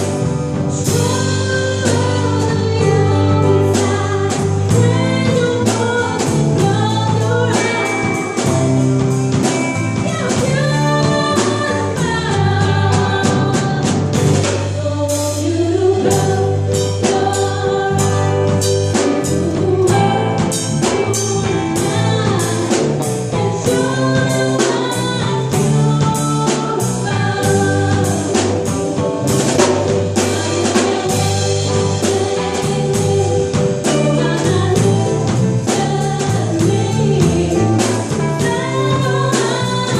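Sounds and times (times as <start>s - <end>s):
drum kit beat: 0.0s - 39.9s
live band music: 0.0s - 39.9s
person singing: 9.4s - 39.9s.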